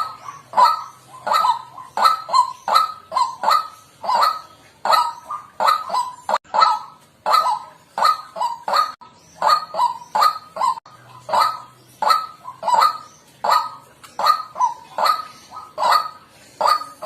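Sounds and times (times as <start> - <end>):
waterhen calling: 0.0 - 17.0.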